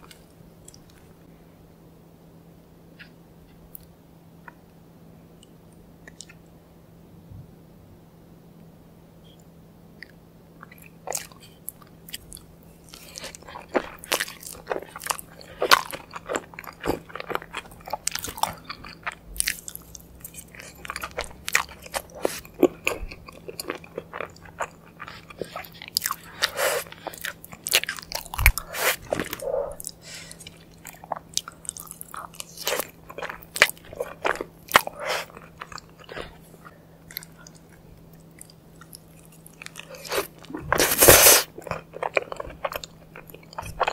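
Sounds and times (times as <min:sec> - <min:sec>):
faint low hum: 0:00.0 - 0:43.9
crunchy food bites and chewing: 0:10.0 - 0:43.9.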